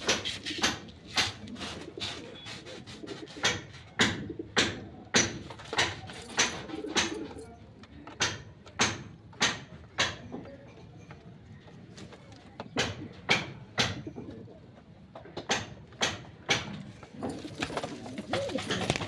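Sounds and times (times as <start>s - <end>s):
pigeons cooing: 0.0s - 4.9s, 5.6s - 7.5s, 13.9s - 14.8s, 17.1s - 19.0s.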